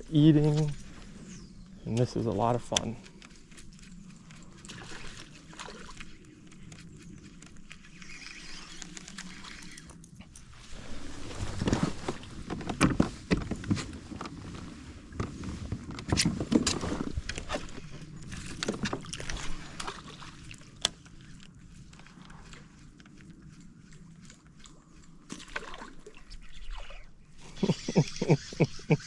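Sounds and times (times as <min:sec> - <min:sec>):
water sloshing against hull: 0:02.6 - 0:28.6.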